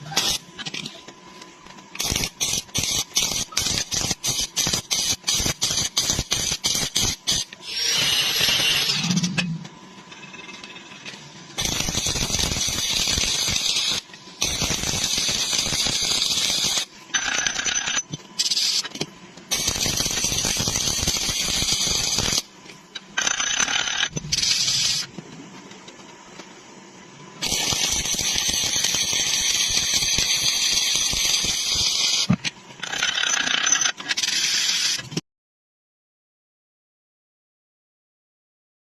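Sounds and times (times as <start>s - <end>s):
welding arc crackling: 0.0s - 9.3s, 11.6s - 22.6s, 23.2s - 25.2s, 27.4s - 33.2s.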